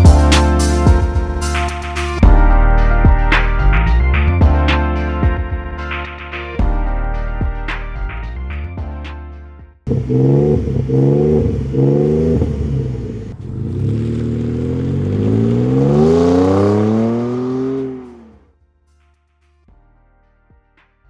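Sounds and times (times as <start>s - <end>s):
pickup truck engine revving: 9.9s - 18.4s.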